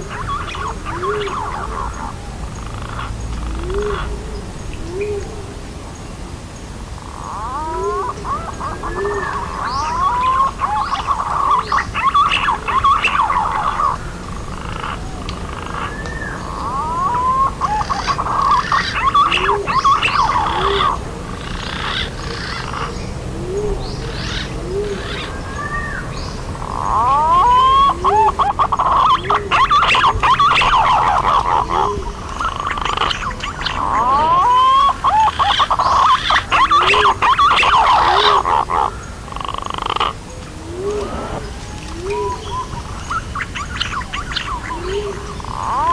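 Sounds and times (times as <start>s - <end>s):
pigeons whistling calls: 7.4s - 14.1s, 15.3s - 39.0s.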